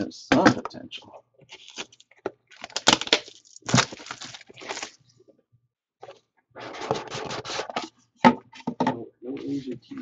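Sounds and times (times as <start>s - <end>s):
plastic packaging crackling: 1.5s - 5.1s.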